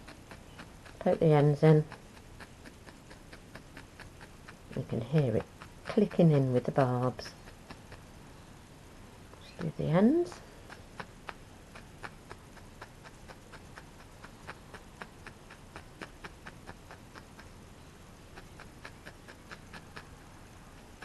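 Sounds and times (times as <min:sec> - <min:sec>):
felting needle clicking: 0:00.0 - 0:08.1, 0:09.3 - 0:21.0.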